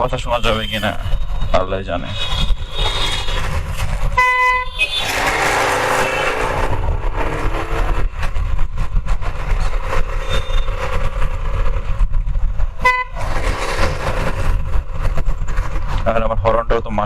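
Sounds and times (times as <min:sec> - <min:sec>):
motorcycle engine rumble: 0:00.0 - 0:16.4
motorcycle horn beep: 0:00.4 - 0:01.5, 0:04.1 - 0:05.2, 0:12.8 - 0:13.2
wind buffeting microphone: 0:01.0 - 0:16.8.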